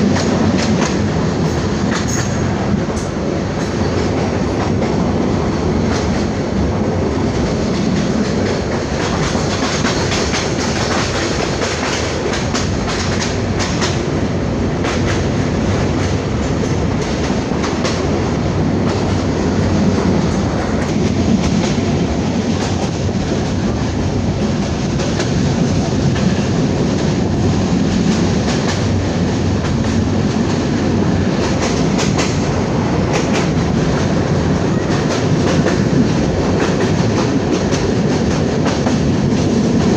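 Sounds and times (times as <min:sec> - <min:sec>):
train carriage rumbling: 0:00.0 - 0:39.9.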